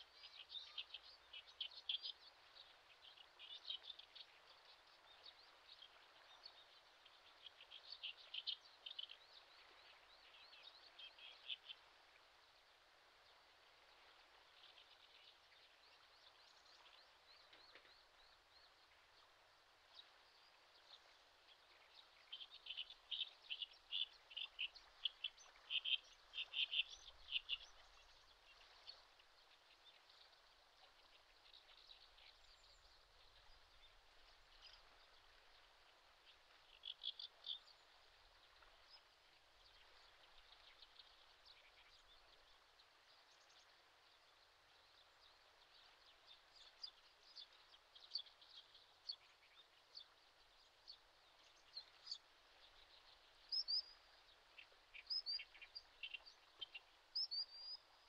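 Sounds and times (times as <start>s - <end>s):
faint high bird chirping: 21.9s - 29.0s, 52.9s - 58.0s.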